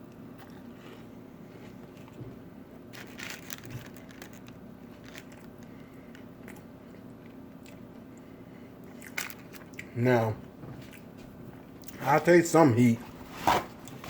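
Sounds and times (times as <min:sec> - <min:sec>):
person chewing crispy chicken: 0:00.1 - 0:02.1, 0:02.9 - 0:10.0.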